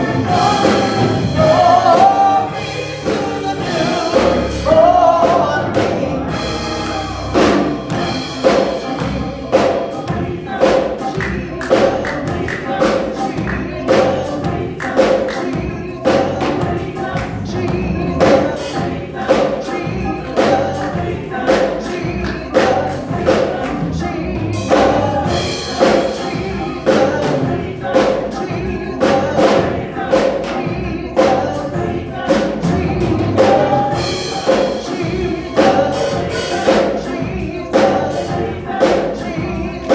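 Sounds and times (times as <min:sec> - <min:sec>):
gospel choir singing: 0:00.0 - 0:39.9
percussive beat: 0:00.0 - 0:39.9.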